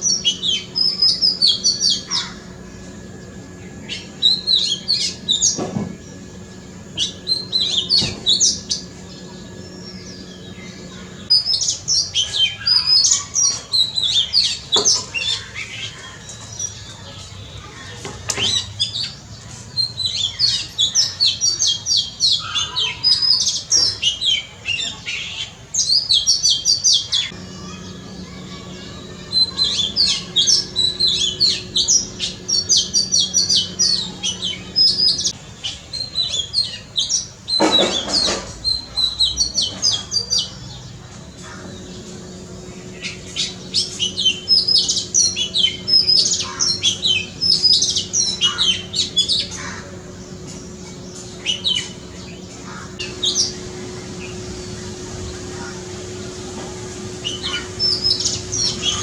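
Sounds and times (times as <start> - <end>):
bird singing whistled notes: 0.0 - 15.7, 19.8 - 25.0, 25.8 - 40.6
faint steady hum: 0.0 - 59.0.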